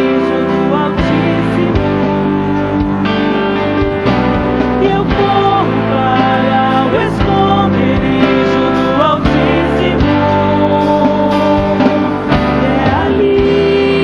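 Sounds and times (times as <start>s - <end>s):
drums: 0.0s - 14.0s
guitar: 0.0s - 14.0s
live band playing worship song: 0.0s - 14.0s
person singing: 0.0s - 14.0s.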